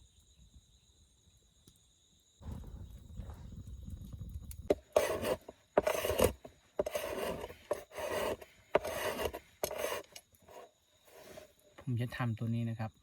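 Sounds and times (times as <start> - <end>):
blade scraping wood: 4.7 - 11.6.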